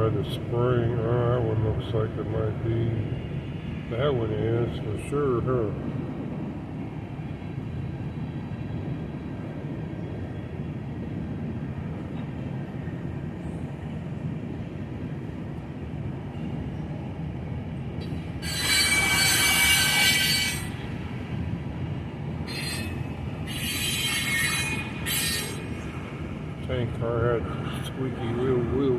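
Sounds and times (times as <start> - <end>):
freight train rumbling past: 0.0 - 28.9
train wheels squealing: 18.0 - 21.2, 22.4 - 26.1.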